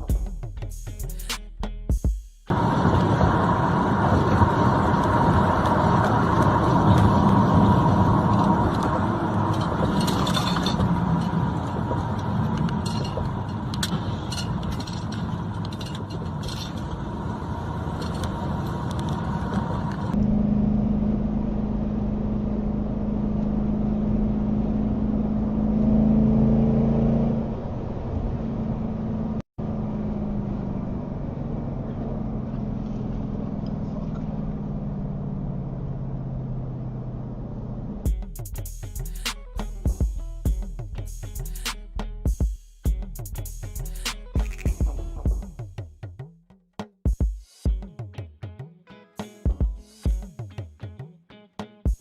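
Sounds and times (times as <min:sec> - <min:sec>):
car engine running: 0:02.5 - 0:26.3, 0:27.7 - 0:41.7
road rumble: 0:02.5 - 0:46.3.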